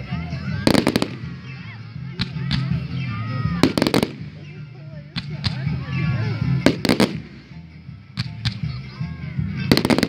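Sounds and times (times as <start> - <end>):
firework shells bursting: 6.7 - 7.4.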